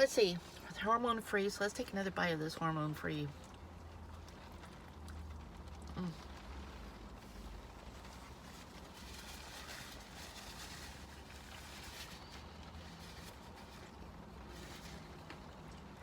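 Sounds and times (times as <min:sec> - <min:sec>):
low steady rumble: 0:00.0 - 0:16.0
person chewing food: 0:03.4 - 0:09.0.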